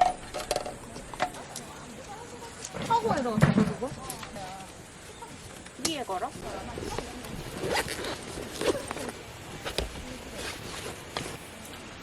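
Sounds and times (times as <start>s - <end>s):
faint low voices: 0.0s - 12.0s
gear rustling and knocking: 5.4s - 11.7s.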